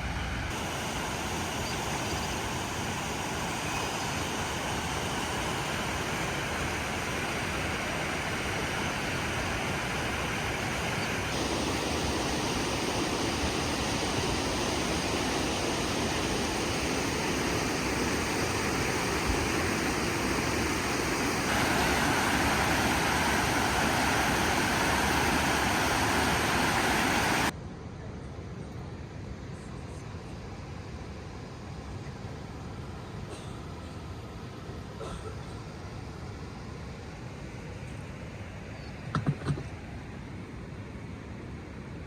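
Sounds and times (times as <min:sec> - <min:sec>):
steady rushing noise: 0:00.0 - 0:27.6.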